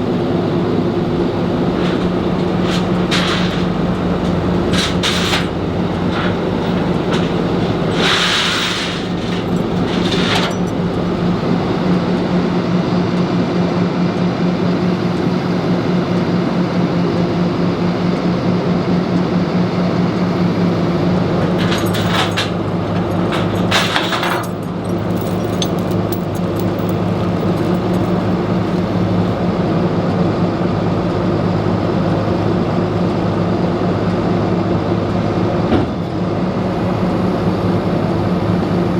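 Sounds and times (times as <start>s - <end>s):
vehicle engine humming: 0.0s - 12.5s, 21.3s - 29.5s.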